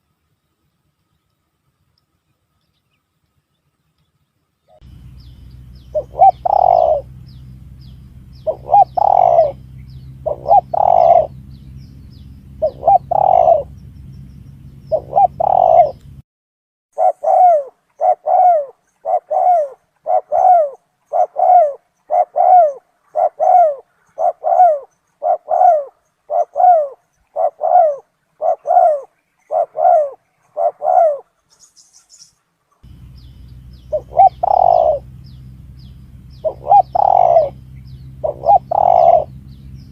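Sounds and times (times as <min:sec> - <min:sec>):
dove cooing: 0:04.8 - 0:16.2, 0:17.0 - 0:31.4, 0:32.8 - 0:39.9
low hum: 0:04.8 - 0:16.2, 0:32.8 - 0:39.9.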